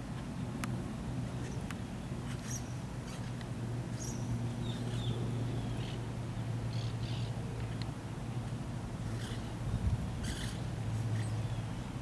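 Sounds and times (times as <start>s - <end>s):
steady low hum: 0.0s - 12.0s
high bird chirps and squeaks: 10.2s - 10.6s.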